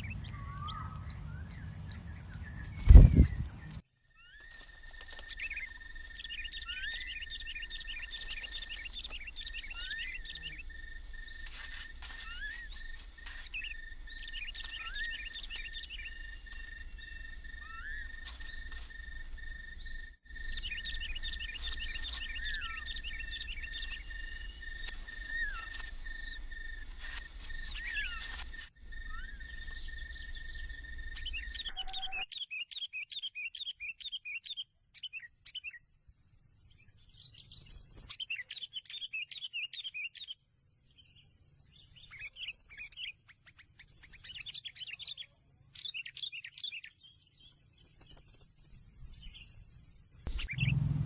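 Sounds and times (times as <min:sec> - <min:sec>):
insects buzzing: 0:00.0 - 0:03.8, 0:48.2 - 0:51.0
birds chirping: 0:00.0 - 0:18.8, 0:50.3 - 0:51.0
steady high whine: 0:50.3 - 0:51.0.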